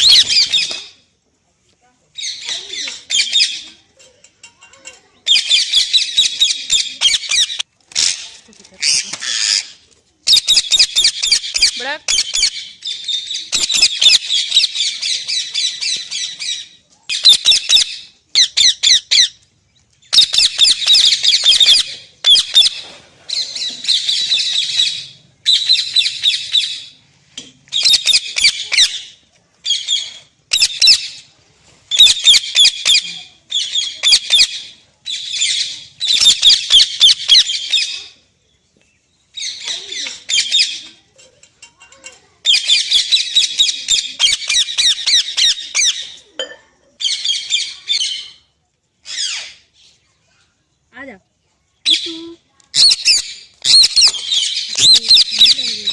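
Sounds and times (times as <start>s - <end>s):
parrot squawking: 0.0s - 0.7s, 52.8s - 55.9s.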